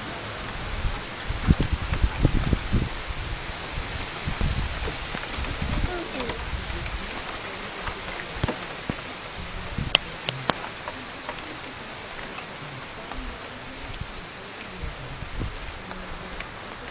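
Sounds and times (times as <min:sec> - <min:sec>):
rain falling: 0:00.0 - 0:16.9
raindrop impacts clicking: 0:04.3 - 0:16.9.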